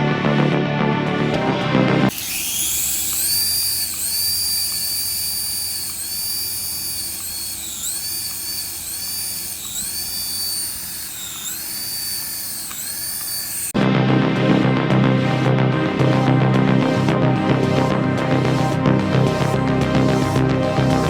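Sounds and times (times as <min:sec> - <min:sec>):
toy electric motor whining: 0:02.1 - 0:13.8.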